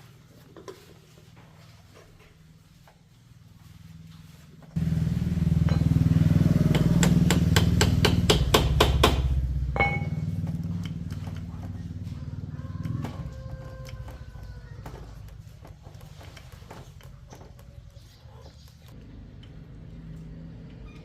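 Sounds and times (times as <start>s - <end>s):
engine running loudly: 4.8s - 13.2s.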